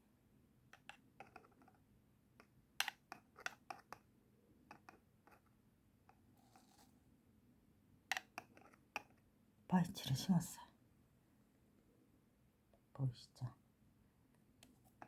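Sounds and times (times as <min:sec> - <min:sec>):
tweezers clicking and tapping: 0:00.8 - 0:01.7, 0:02.4 - 0:04.0, 0:08.1 - 0:09.2.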